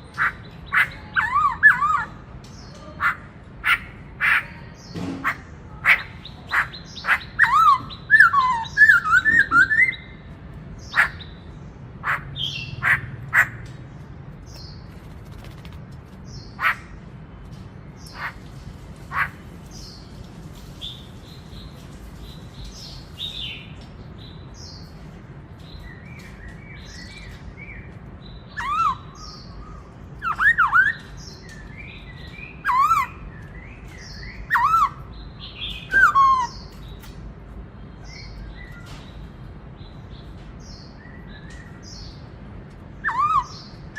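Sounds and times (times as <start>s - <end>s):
bird whistled phrases: 5.9s - 10.1s, 30.2s - 31.1s, 35.8s - 36.5s.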